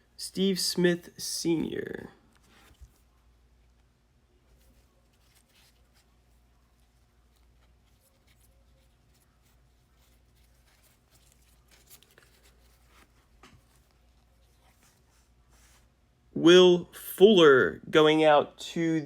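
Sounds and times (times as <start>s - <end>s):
low room hum: 0.0s - 19.0s
trading cards rustling and clicking: 4.6s - 15.2s.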